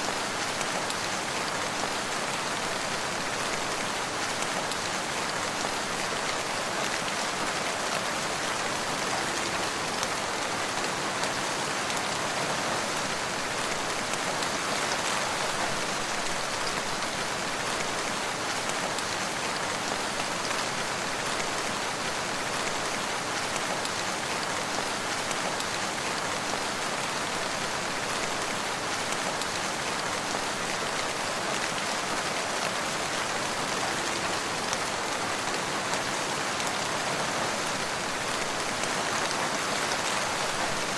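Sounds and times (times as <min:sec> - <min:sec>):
rain pattering on surfaces: 0:00.0 - 0:40.9.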